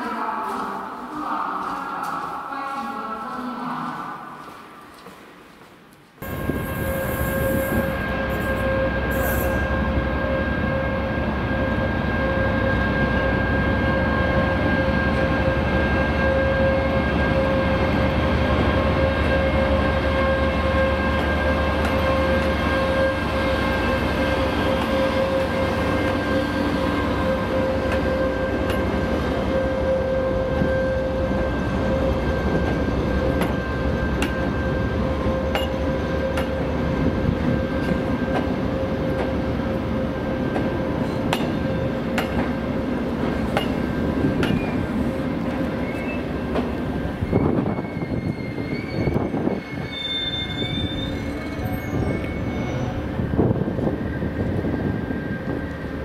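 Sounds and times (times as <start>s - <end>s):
diesel locomotive whine: 6.2s - 56.0s.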